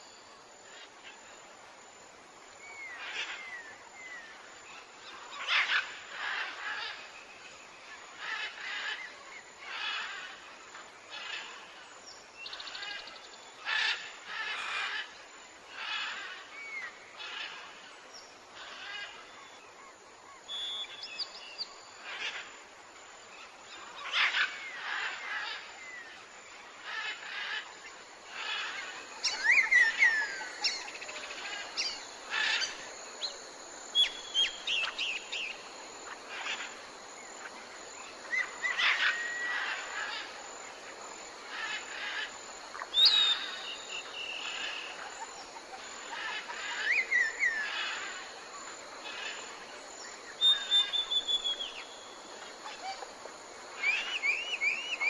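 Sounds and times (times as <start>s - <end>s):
background hiss: 0.0s - 55.0s
birds chirping and whistling: 50.4s - 51.8s.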